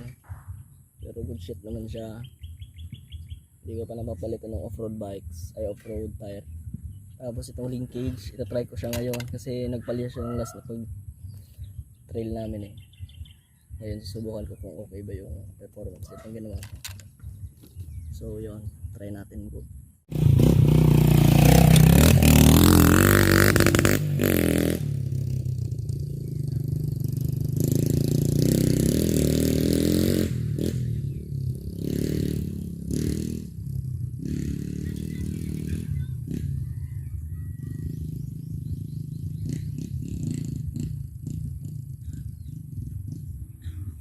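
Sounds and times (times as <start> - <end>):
dirt bike engine revving: 20.1 - 43.8.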